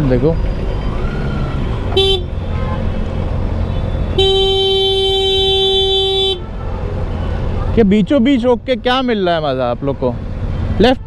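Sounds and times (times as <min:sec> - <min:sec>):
vehicle horn honking: 0:01.9 - 0:03.0, 0:03.7 - 0:07.4.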